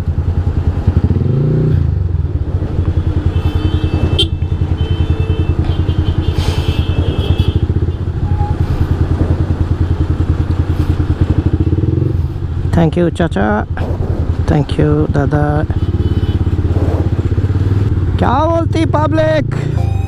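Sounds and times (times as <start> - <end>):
motorcycle engine idling: 2.2 - 12.7.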